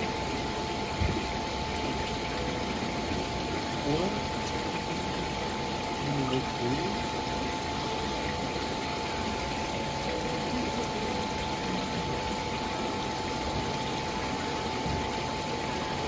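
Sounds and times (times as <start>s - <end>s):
faint steady hum: 0.0s - 16.0s
fountain water splashing: 0.0s - 16.0s.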